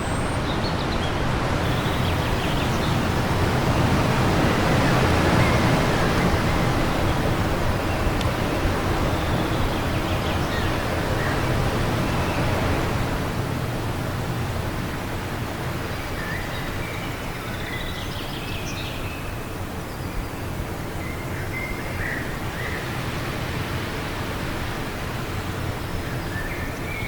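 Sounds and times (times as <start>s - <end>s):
faint birdsong: 0.0s - 13.1s
wind blowing: 1.5s - 16.5s.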